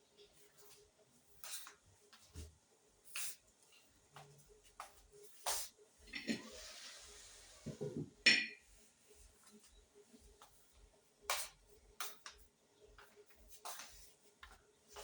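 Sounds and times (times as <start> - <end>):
dishes and utensils clattering: 6.1 - 6.7, 7.6 - 8.6.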